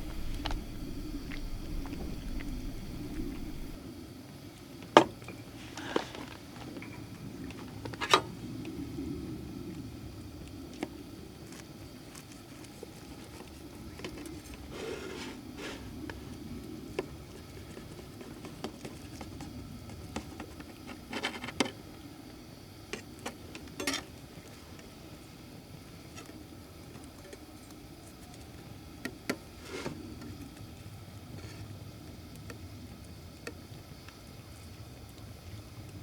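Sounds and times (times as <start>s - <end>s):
low background rumble: 0.0s - 3.8s.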